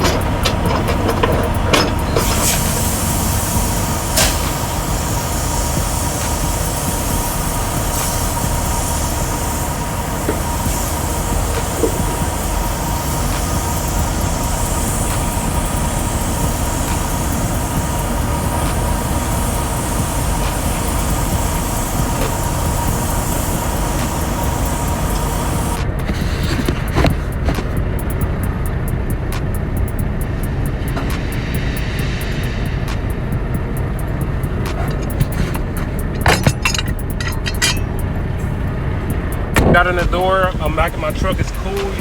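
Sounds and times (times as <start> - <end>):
diesel truck engine running: 0.0 - 42.0.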